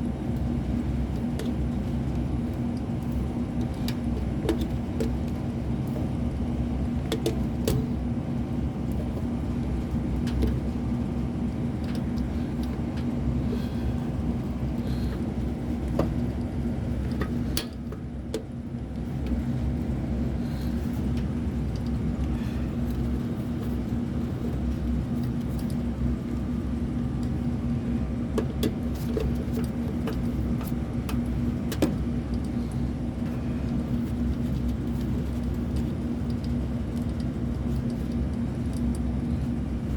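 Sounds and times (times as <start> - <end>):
low machine hum: 0.0 - 39.9
light clicks and taps: 28.4 - 32.8, 33.7 - 39.1.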